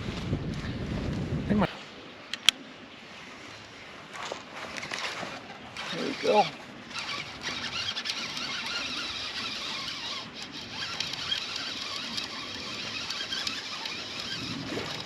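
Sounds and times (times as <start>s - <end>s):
fishing reel whirring: 5.7s - 15.0s.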